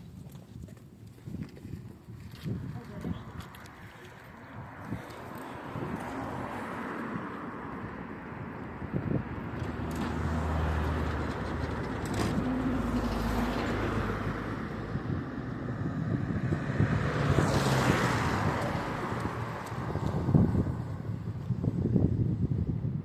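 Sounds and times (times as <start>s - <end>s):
tram humming and rumbling: 7.3s - 17.6s, 18.2s - 21.6s.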